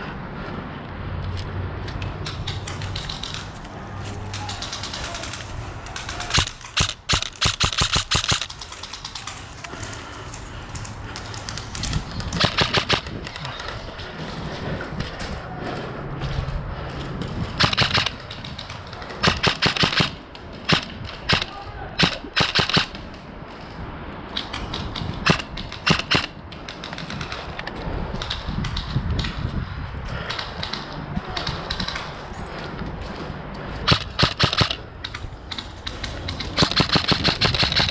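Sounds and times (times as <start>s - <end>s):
airsoft guns automatic fire: 4.3s - 9.4s, 12.3s - 13.7s, 17.6s - 23.0s, 25.2s - 26.4s, 33.9s - 34.8s, 36.3s - 37.9s.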